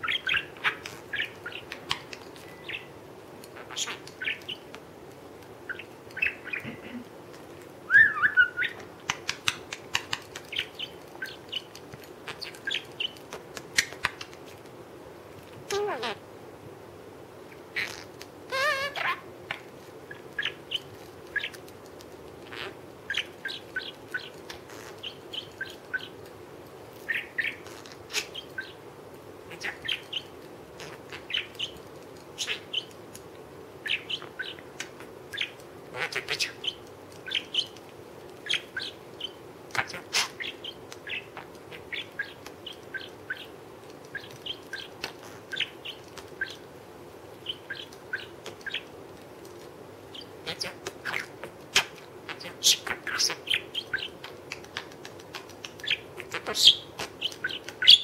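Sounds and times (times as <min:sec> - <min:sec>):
parrot chirps and clicks: 0:00.0 - 0:06.7, 0:07.3 - 0:14.8, 0:17.5 - 0:28.8, 0:29.5 - 0:46.7, 0:47.3 - 0:58.0.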